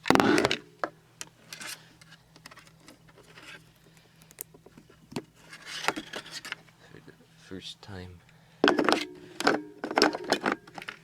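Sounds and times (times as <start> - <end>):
plastic clatter and clicks: 8.6 - 11.0.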